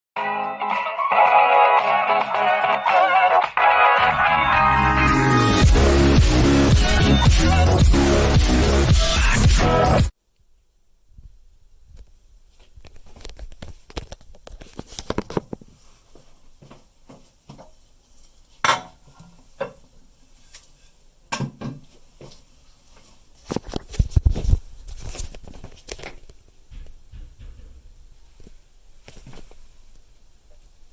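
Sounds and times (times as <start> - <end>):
hard parts clinking and knocking: 26.0 - 28.2.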